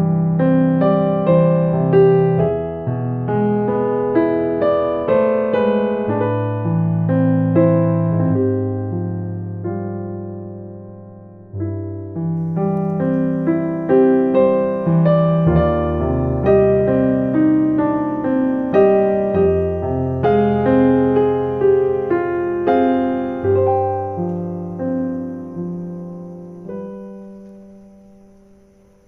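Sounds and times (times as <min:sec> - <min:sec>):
gentle solo piano: 0:00.0 - 0:29.0.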